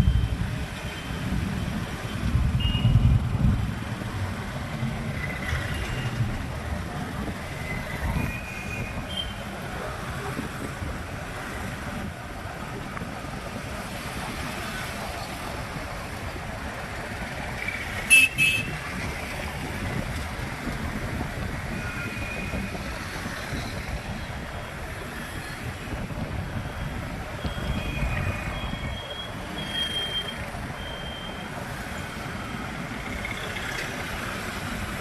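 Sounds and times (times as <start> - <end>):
road and traffic noise: 0.0 - 35.0
vehicle horn honking: 18.1 - 18.7.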